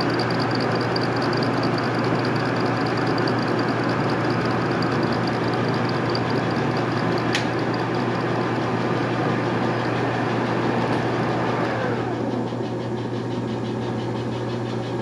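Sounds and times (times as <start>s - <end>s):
machine tool cutting gear teeth: 0.0s - 8.2s
sharp click: 7.2s - 7.6s.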